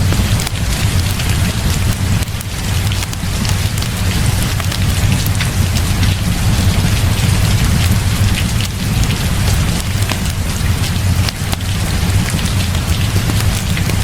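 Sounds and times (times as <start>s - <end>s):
deep rumble: 0.0s - 14.0s
heavy rain falling: 0.0s - 14.0s
sharp ticks and crackles: 0.0s - 14.0s.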